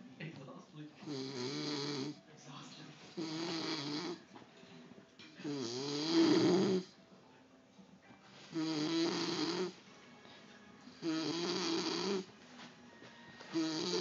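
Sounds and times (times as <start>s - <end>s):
raspy snoring: 1.0s - 2.2s, 3.1s - 4.2s, 5.4s - 7.0s, 8.5s - 9.8s, 10.9s - 12.3s, 13.5s - 14.0s.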